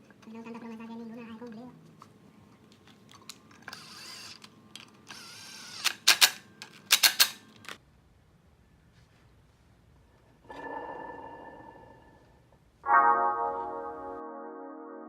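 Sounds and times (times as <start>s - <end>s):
sharp loud mechanical clicks: 3.7s - 7.8s.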